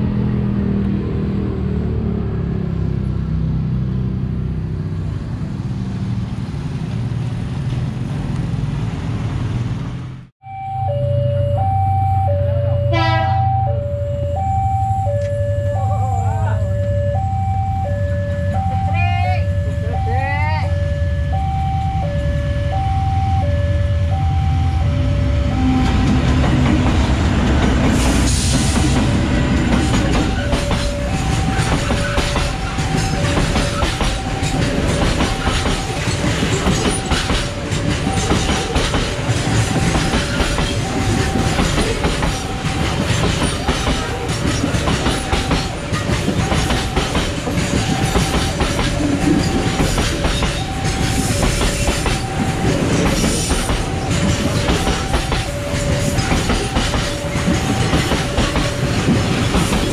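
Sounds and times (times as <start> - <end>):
diesel locomotives rumbling: 0.0 - 59.9
two-note crossing warning signal: 10.4 - 26.4, 28.4 - 44.3, 44.9 - 59.8
wagon wheels clattering on rails: 28.7 - 59.9.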